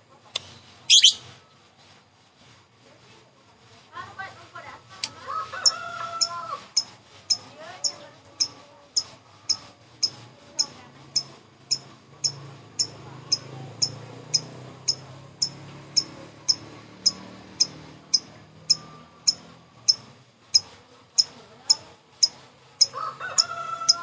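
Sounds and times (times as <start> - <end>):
lovebird high chirps: 0.9 - 1.3, 5.6 - 24.0.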